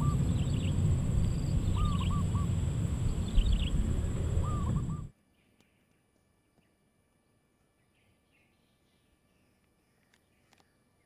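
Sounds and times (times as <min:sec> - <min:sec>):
steady low rumble: 0:00.0 - 0:05.1.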